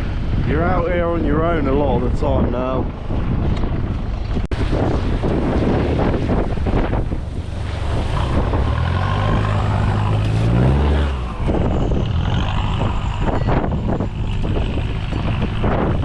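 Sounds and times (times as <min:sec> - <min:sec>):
wind buffeting microphone: 0:00.0 - 0:16.0
car engine revving: 0:04.8 - 0:16.0.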